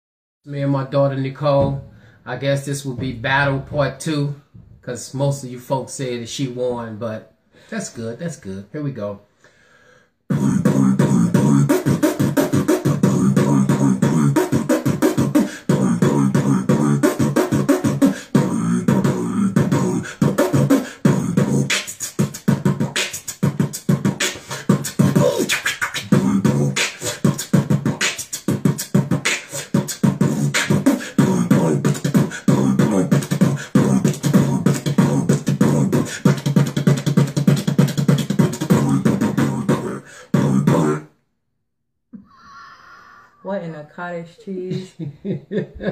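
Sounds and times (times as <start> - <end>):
person beatboxing: 10.3 - 41.1.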